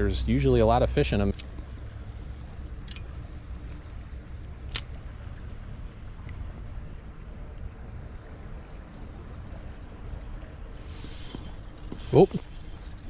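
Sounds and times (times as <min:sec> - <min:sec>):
high-pitched insect chorus: 0:00.0 - 0:13.0
sharp click: 0:04.7 - 0:04.9.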